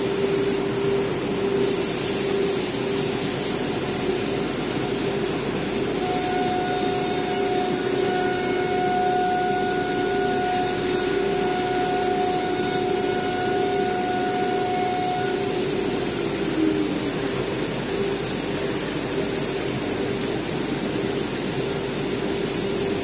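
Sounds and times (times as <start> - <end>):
cnc router whine: 0.0 - 23.0
higher machine whine: 0.0 - 23.0.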